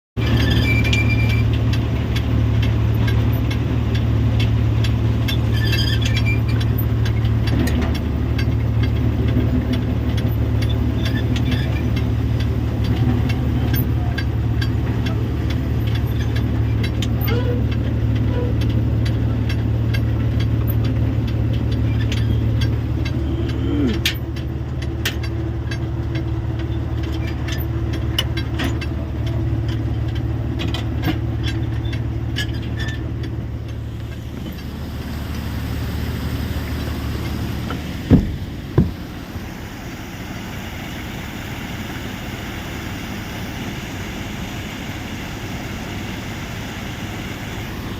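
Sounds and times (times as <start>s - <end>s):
engine running: 0.0s - 47.9s.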